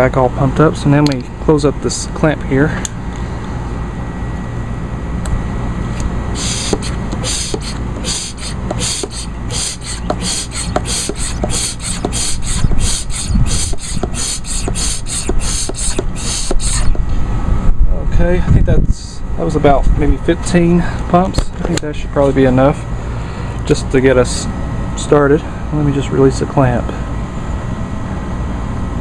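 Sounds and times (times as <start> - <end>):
hand pump hissing strokes: 6.3 - 17.0.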